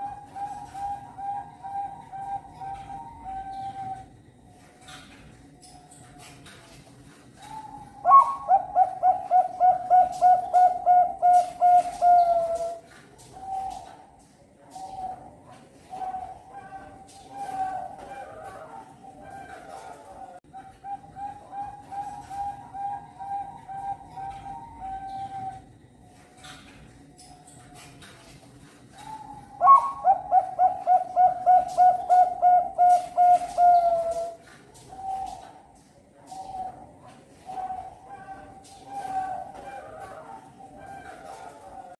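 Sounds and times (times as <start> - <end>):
dove cooing: 0.0 - 4.4, 7.4 - 25.8, 28.9 - 41.9.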